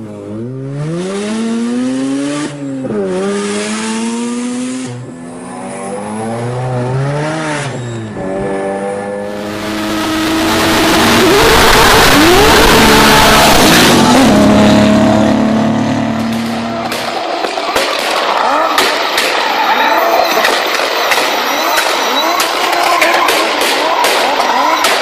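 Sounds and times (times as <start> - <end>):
car engine accelerating: 0.0 - 25.0
short rising squeals: 5.0 - 15.5.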